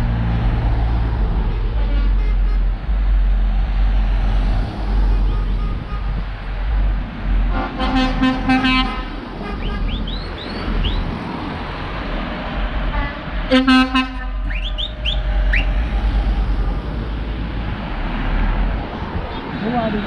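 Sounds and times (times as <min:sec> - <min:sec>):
low traffic rumble: 0:00.0 - 0:20.0
vehicle horns tooting: 0:05.1 - 0:06.2, 0:07.5 - 0:11.0, 0:12.9 - 0:15.8
rising whistle-like chirps: 0:09.8 - 0:11.1, 0:14.2 - 0:15.9.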